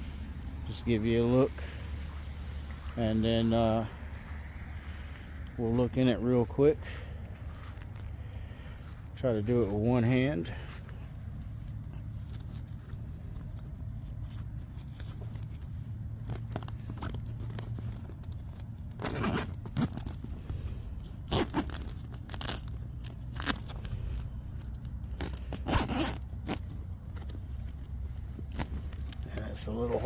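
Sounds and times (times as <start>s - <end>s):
steady low rumble: 0.0s - 30.0s
nylon tent door rustling: 21.2s - 23.8s.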